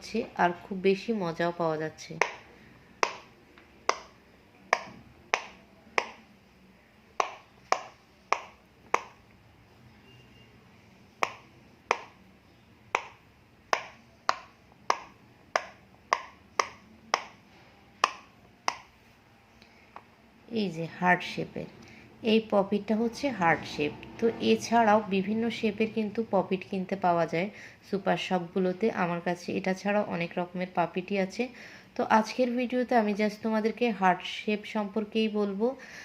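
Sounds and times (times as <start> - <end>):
pop-it toy bubbles popping: 2.2 - 2.4, 3.0 - 3.3, 3.9 - 6.2, 7.2 - 9.2, 11.2 - 12.2, 12.9 - 17.4, 18.0 - 18.9.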